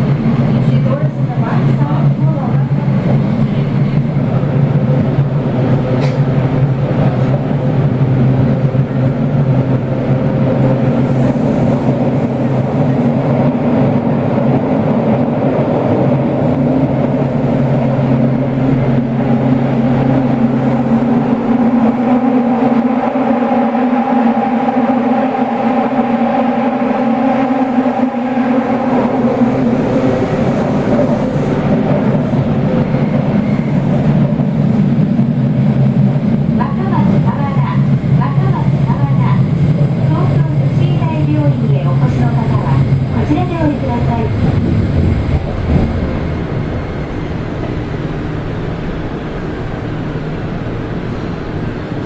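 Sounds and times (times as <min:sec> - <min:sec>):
subway train running in tunnel: 0:00.0 - 0:52.0
low falling motor tones: 0:41.7 - 0:48.8.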